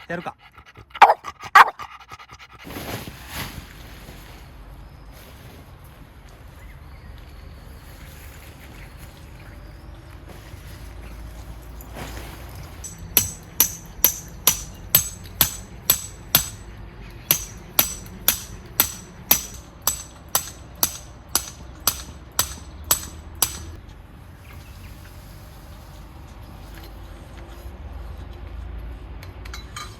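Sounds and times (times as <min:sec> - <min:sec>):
hammer striking tent peg: 0:12.8 - 0:16.7, 0:17.3 - 0:23.8.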